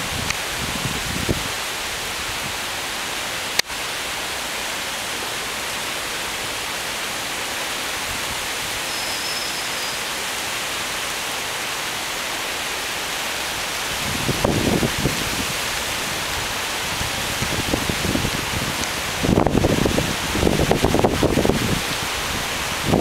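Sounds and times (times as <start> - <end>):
heavy rain hissing: 0.0 - 23.0.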